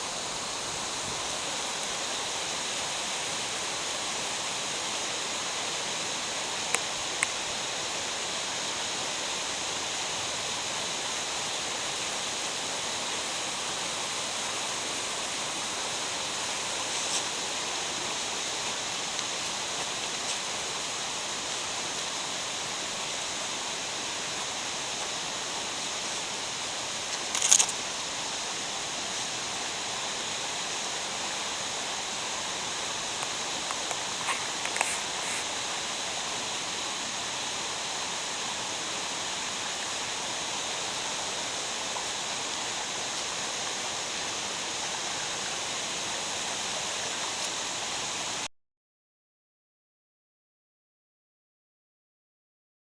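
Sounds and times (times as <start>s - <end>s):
water rushing: 0.0s - 48.4s
faint small ticks: 27.1s - 27.8s, 33.2s - 35.6s.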